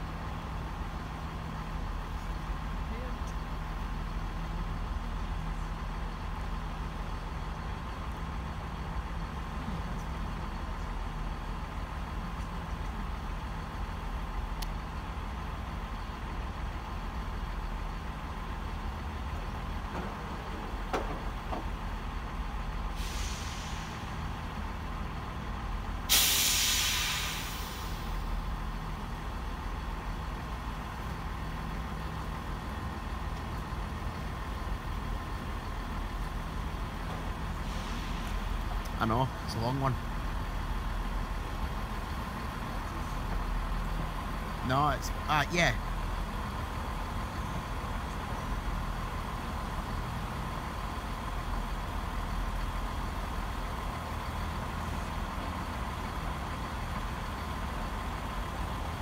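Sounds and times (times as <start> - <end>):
diesel train engine drone: 0.0 - 59.0
air brakes hissing: 22.8 - 24.4, 26.0 - 28.4, 37.5 - 38.7
short hiss: 22.9 - 24.1, 26.1 - 28.2, 37.6 - 38.5.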